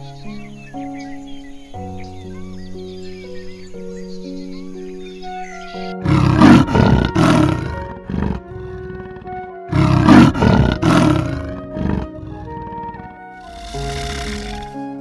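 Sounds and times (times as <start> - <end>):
background music: 0.0 - 15.0
leopard rasping grunts: 6.0 - 14.8.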